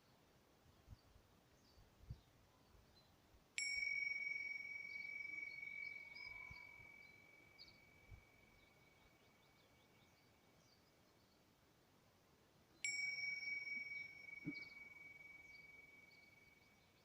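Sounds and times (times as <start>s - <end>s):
faint bird chirps: 0.8s - 11.6s, 12.7s - 17.0s
meditation bell ringing: 3.6s - 10.0s, 12.8s - 17.0s.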